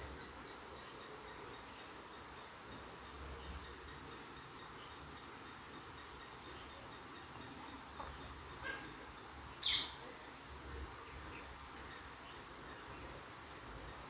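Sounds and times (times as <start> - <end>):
faint bird chirps: 0.0 - 10.1.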